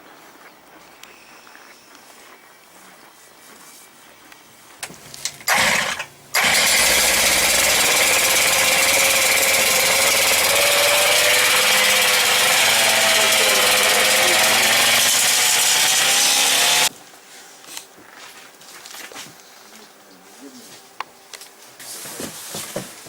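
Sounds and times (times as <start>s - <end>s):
engine starting and running: 4.8s - 16.9s.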